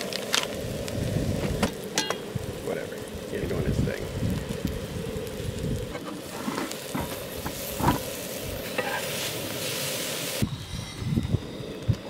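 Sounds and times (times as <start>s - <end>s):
eggs sizzling on a griddle: 0.0s - 12.0s
metal tongs scraping griddle: 5.9s - 9.3s.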